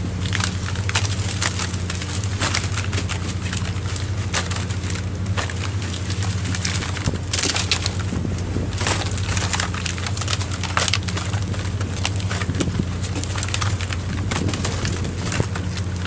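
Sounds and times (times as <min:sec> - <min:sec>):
boat machinery humming: 0:00.0 - 0:16.0
clatter and knocks: 0:00.0 - 0:16.0
dense rush of noise: 0:00.0 - 0:16.0.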